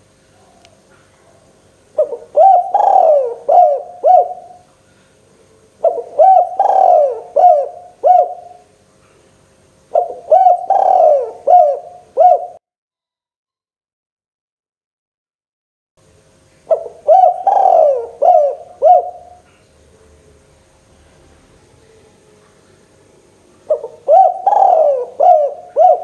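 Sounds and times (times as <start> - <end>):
dove cooing: 0.4 - 4.7, 5.8 - 8.7, 9.9 - 12.6, 16.7 - 19.6, 23.6 - 26.0.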